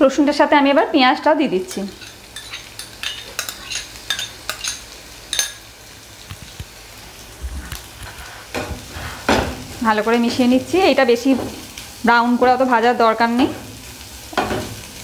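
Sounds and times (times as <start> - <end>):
onion sizzling in oil: 0.0 - 15.0
spatula scraping a pan: 1.7 - 5.6, 8.0 - 10.5
oil crackling and popping: 1.8 - 8.9.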